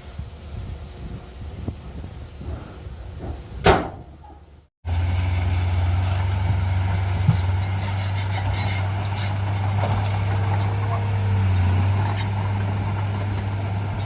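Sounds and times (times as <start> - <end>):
diesel engine droning: 4.8 - 14.0
heavy machinery working: 4.9 - 14.0.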